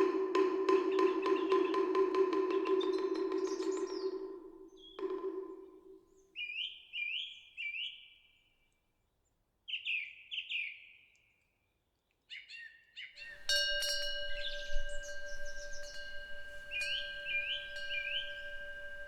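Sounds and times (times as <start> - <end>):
small birds chirping: 12.4 - 19.0
wind bell ringing: 13.2 - 19.0.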